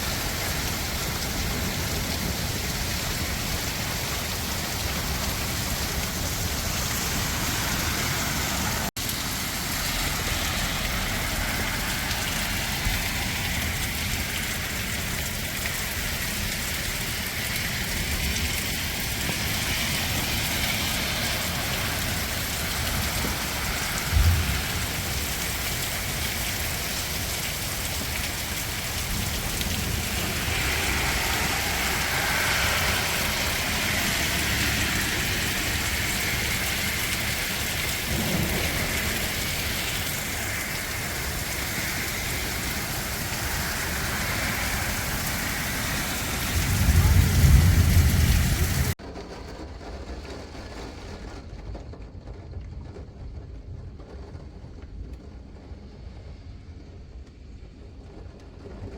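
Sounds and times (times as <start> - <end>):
heavy rain falling: 0.0 - 58.9
low thump: 24.1 - 24.8.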